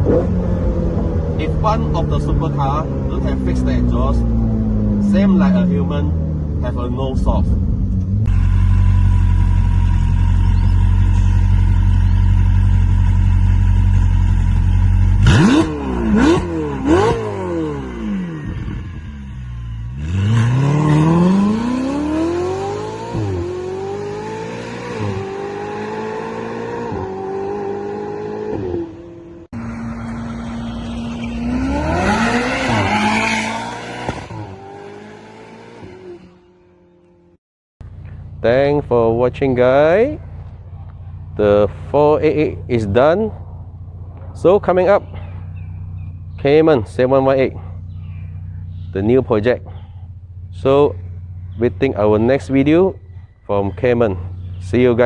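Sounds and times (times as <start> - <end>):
sports car engine revving: 0.0 - 55.0.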